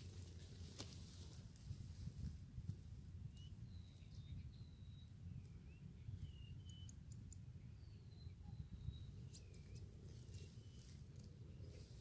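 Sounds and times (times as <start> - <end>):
whistled bird calls: 3.3 - 10.9.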